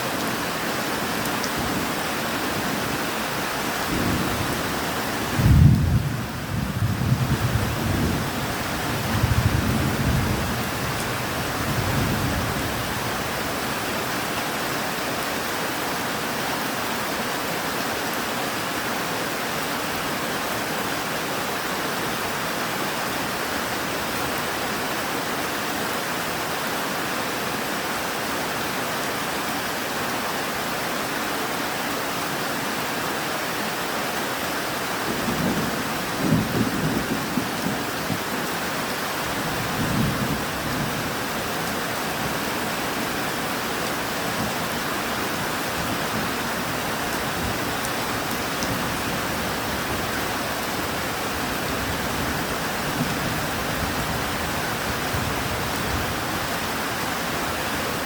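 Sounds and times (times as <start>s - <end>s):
steady rain falling: 0.0s - 58.0s
thunder rolling: 5.4s - 8.3s.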